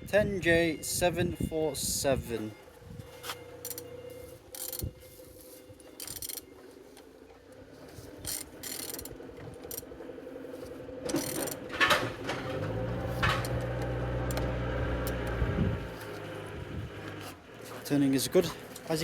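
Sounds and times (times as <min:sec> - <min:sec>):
wrench ratchet clicks: 0:04.6 - 0:04.9, 0:06.0 - 0:06.4, 0:08.2 - 0:09.9, 0:11.2 - 0:11.6
mechanical scraping: 0:10.6 - 0:19.0.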